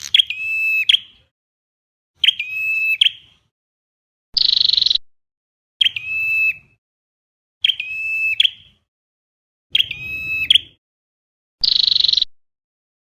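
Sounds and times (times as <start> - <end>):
recorded bird calls: 0.0 - 1.3, 2.2 - 3.5, 4.4 - 5.0, 5.8 - 6.8, 7.6 - 8.9, 9.7 - 10.8, 11.6 - 12.3.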